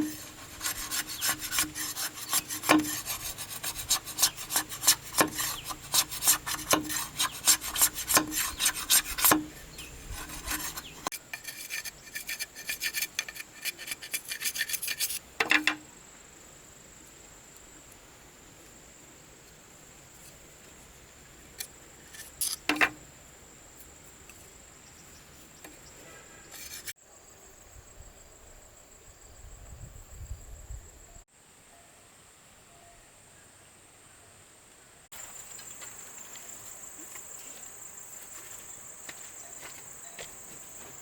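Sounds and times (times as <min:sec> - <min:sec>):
hand tool rasping wood: 0:00.0 - 0:15.7.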